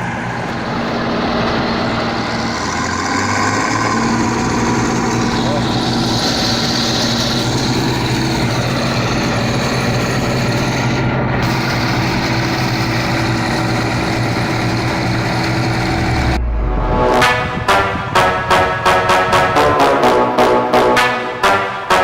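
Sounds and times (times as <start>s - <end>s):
diesel engine running steadily: 0.0s - 19.7s.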